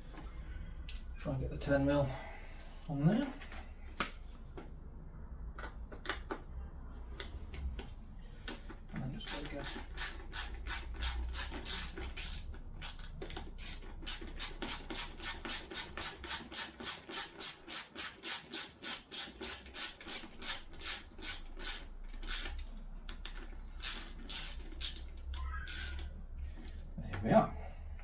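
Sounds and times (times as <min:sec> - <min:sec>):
socket ratchet clicking: 0:09.3 - 0:26.1.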